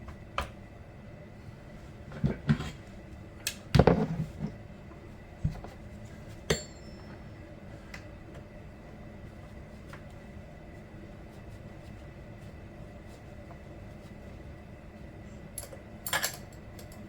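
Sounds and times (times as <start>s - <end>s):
metal tools clinking and knocking: 15.6s - 17.0s.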